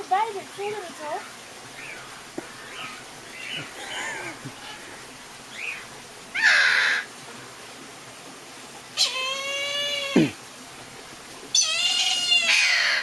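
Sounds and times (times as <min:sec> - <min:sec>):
bird wailing call: 0:09.0 - 0:10.3, 0:11.5 - 0:13.0
bird squawking harshly: 0:11.5 - 0:13.0.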